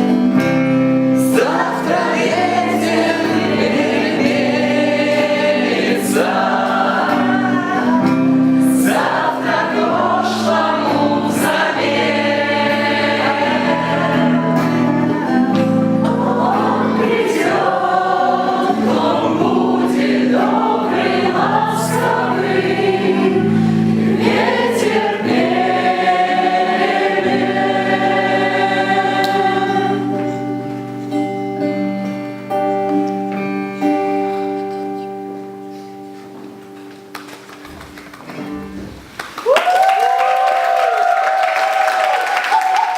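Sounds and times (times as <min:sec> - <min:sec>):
instrumental accompaniment: 0:00.0 - 0:39.2
choir singing: 0:01.1 - 0:31.1.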